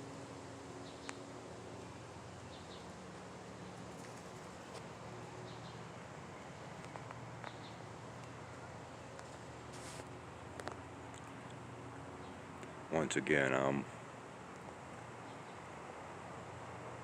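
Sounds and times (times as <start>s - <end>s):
low outdoor hum: 0.0s - 17.0s
faint robin chirps: 1.9s - 2.9s.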